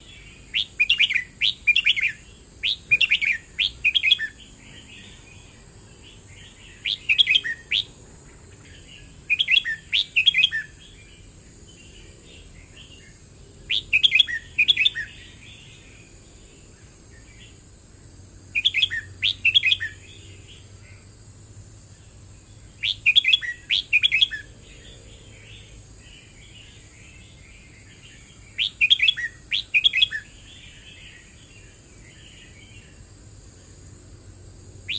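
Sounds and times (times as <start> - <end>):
soft bird twittering: 0.0 - 17.6, 18.5 - 21.0, 22.0 - 33.0
bulbul warbling song: 0.6 - 4.4, 6.8 - 7.9, 18.6 - 20.0, 28.6 - 30.2.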